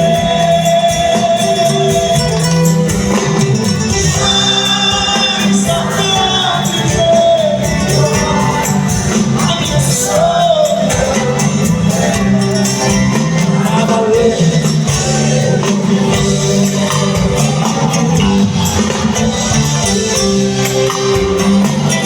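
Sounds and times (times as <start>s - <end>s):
live band instrumental music: 0.0s - 22.0s.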